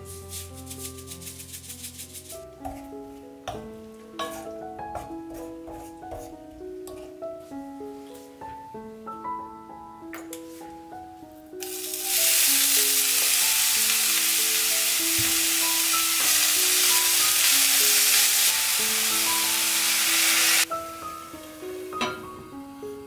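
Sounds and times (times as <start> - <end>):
soft piano melody: 0.0 - 23.0
greens sizzling in hot oil: 11.6 - 23.0.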